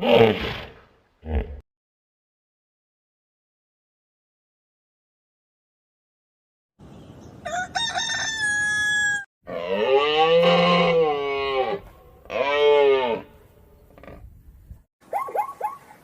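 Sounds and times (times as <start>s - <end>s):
rooster crowing: 7.4s - 9.3s.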